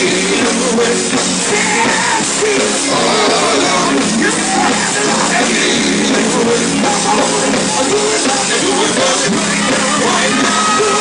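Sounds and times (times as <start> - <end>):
band playing: 0.0 - 11.0
gospel singing: 0.0 - 11.0.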